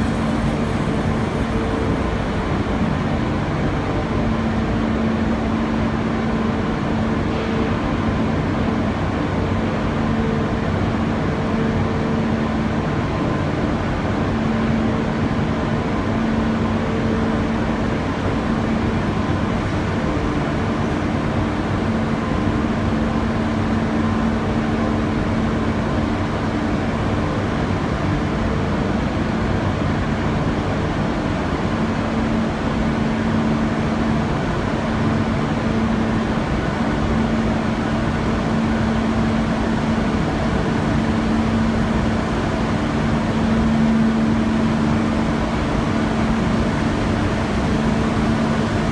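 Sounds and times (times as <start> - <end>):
industrial machinery drone: 0.0 - 48.9.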